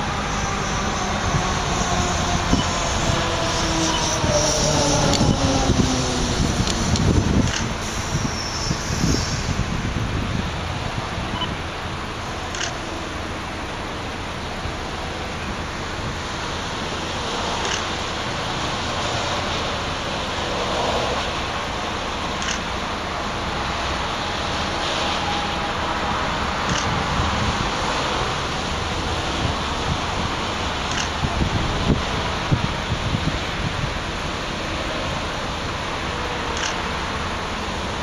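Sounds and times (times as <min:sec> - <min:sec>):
freight train rumbling past: 0:00.0 - 0:38.0
faint clicks: 0:22.4 - 0:22.7.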